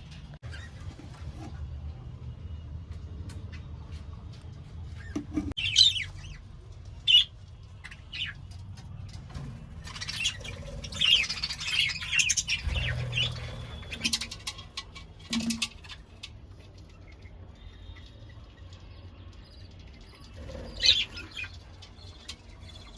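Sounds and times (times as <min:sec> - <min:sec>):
budgerigars chirping and chattering: 0:05.6 - 0:06.4, 0:07.0 - 0:08.4, 0:09.8 - 0:16.1, 0:20.4 - 0:21.6.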